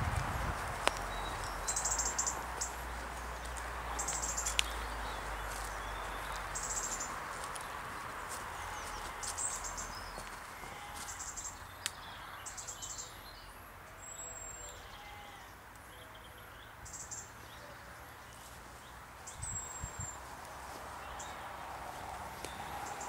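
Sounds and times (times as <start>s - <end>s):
footsteps on dry leaves: 0.0s - 11.6s, 18.3s - 23.0s
small birds chirping: 0.4s - 23.0s.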